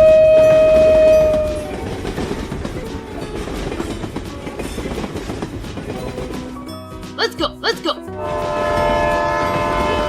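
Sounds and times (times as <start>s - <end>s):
train horn: 0.0s - 1.9s, 8.1s - 10.0s
train rumbling on track: 0.0s - 7.1s, 8.0s - 10.0s.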